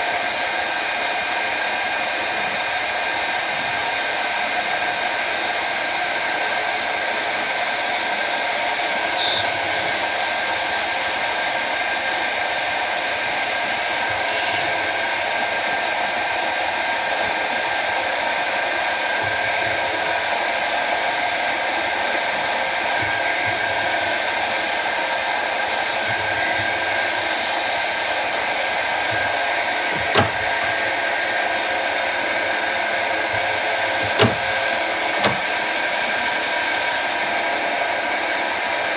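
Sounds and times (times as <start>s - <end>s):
lathe whirring hiss: 22.7s - 31.7s, 33.0s - 37.1s
sharp click: 29.1s - 31.0s, 33.3s - 35.6s.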